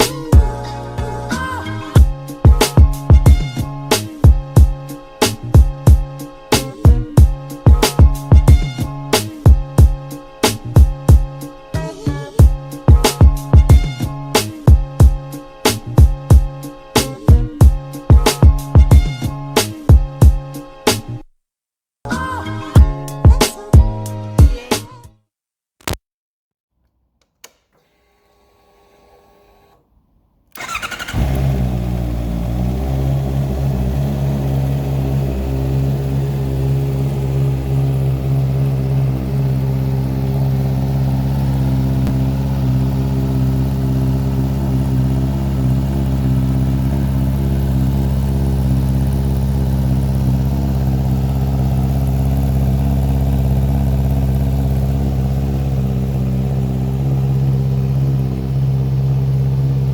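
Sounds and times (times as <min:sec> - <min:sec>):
motorcycle engine starting and idling: 0:00.0 - 0:11.6, 0:27.2 - 0:59.9.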